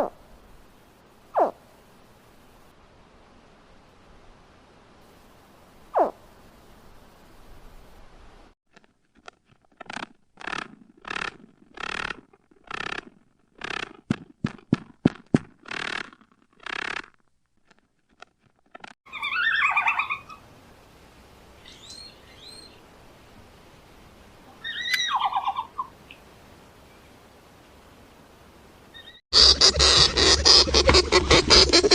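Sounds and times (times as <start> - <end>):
rapid pulsed animal call: 1.3 - 1.6, 19.1 - 20.4, 24.5 - 26.0, 29.0 - 31.9
falling animal call: 1.4 - 1.6, 19.1 - 20.4, 24.4 - 26.0, 28.9 - 31.9
sharp clicks: 9.2 - 19.0.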